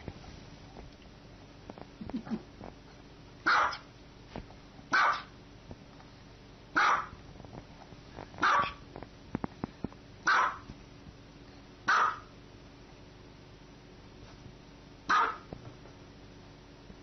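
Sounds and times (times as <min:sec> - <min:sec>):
small dog barking: 0:03.4 - 0:03.9, 0:04.9 - 0:05.4, 0:06.7 - 0:07.2, 0:08.4 - 0:08.8, 0:10.2 - 0:10.7, 0:11.8 - 0:12.3, 0:15.1 - 0:15.5.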